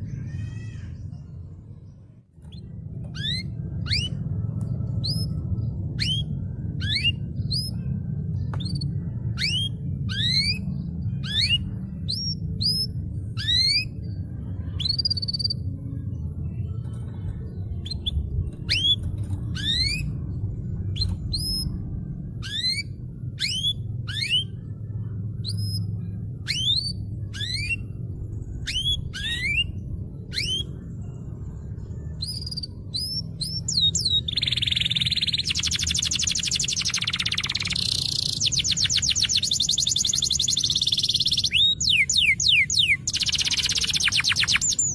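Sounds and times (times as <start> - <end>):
low background hum: 0.0 - 44.9
canary singing whistled notes: 5.0 - 7.8, 8.7 - 14.0, 22.4 - 24.6, 25.4 - 28.0, 28.6 - 30.8, 32.2 - 44.9
fast bird trill: 32.2 - 44.9.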